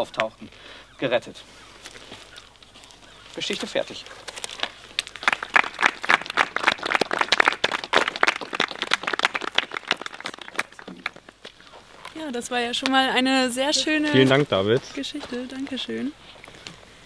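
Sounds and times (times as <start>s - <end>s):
people clapping: 5.0s - 11.5s.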